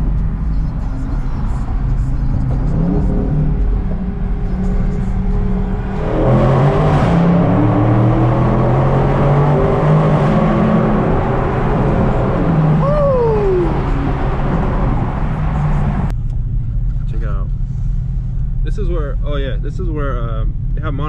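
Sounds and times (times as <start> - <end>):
car engine revving: 0.0 - 16.2.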